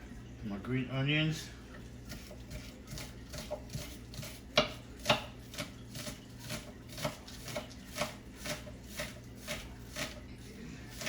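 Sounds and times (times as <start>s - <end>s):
knife chopping on cutting board: 2.1s - 10.2s.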